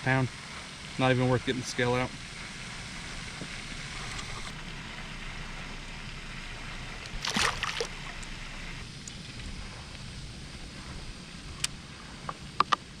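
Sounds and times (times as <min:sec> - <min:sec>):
water washing around kayak: 0:07.1 - 0:08.4
water splashing: 0:07.1 - 0:08.5.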